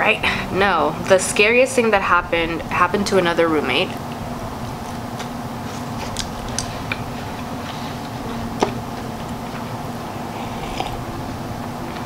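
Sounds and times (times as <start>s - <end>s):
crunchy chewing: 4.2s - 12.0s.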